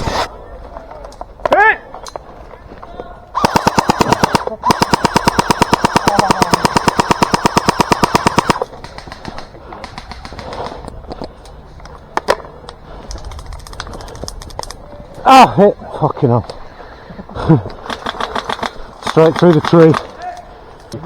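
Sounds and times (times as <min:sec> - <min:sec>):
airsoft gun firing bursts: 0:03.4 - 0:10.8, 0:17.9 - 0:20.1.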